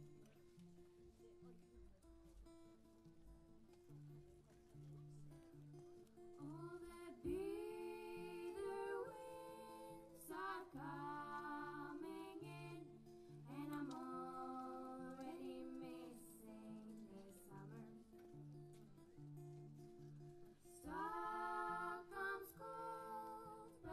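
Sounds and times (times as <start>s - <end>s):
plucked acoustic guitar: 0.0s - 23.9s
person singing: 6.4s - 18.1s, 20.8s - 23.9s.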